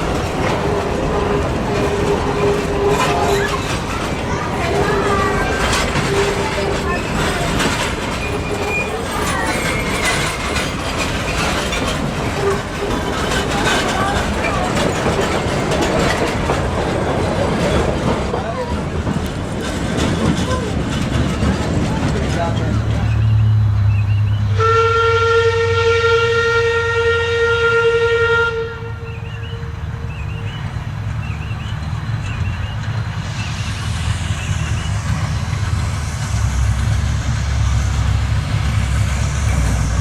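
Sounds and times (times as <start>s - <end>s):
steam train rumbling and rattling: 0.0s - 40.0s
locomotive steam whistle blast: 23.2s - 30.6s.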